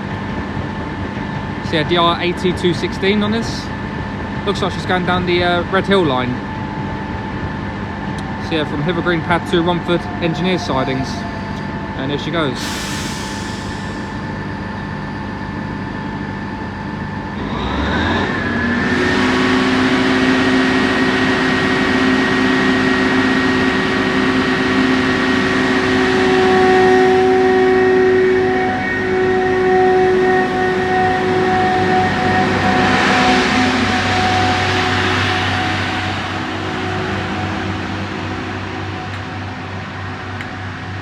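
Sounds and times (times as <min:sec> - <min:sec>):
high whine: 0:00.0 - 0:41.0
diesel engine revving and droning: 0:17.2 - 0:40.3.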